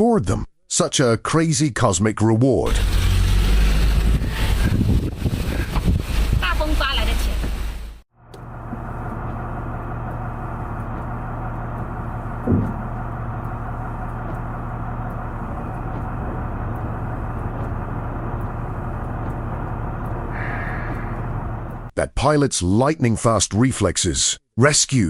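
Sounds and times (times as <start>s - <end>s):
road noise: 2.7s - 21.9s
vehicle engine drone: 2.7s - 21.9s
knock inside vehicle: 11.8s - 12.9s.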